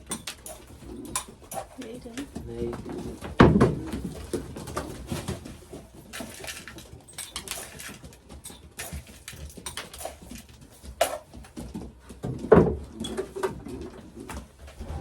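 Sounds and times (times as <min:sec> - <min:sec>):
pigeons tapping and scuffling: 0:00.0 - 0:15.0.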